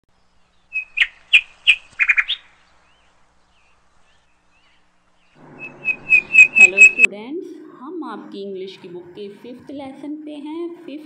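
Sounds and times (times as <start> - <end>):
birds chirping: 0.1 - 7.1.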